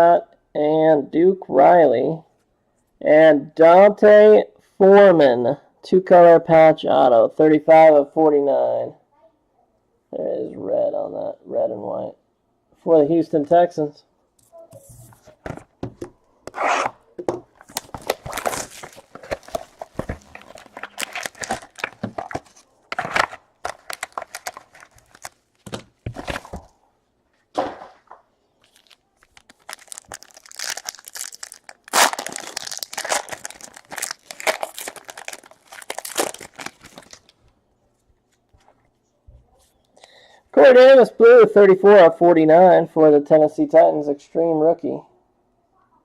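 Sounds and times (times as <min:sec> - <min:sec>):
packaging tearing and crinkling: 0:17.6 - 0:26.6, 0:28.7 - 0:37.4.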